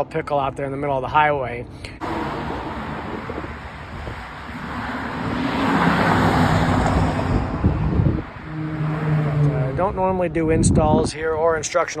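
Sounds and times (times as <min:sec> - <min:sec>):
vehicle passing: 0:02.0 - 0:10.6.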